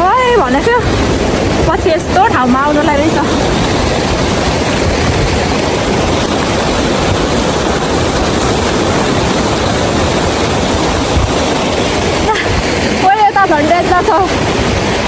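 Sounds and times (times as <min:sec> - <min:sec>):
fast-flowing water rushing: 0:00.0 - 0:15.0.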